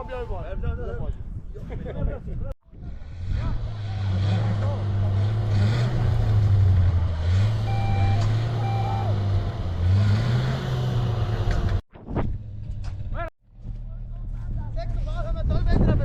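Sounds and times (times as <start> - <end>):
reversing alarm beeps: 7.6 - 9.2.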